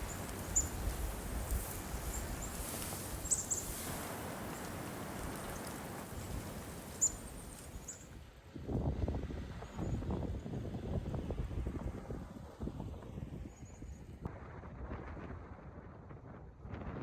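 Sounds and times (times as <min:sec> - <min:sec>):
bird chirping calls: 0:00.0 - 0:08.1
steady outdoor hiss: 0:00.0 - 0:13.7.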